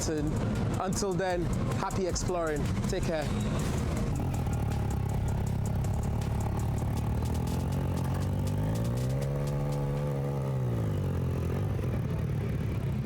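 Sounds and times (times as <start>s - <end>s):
fast ticking clatter: 0.0s - 10.2s
motorcycle engine running: 0.0s - 13.0s.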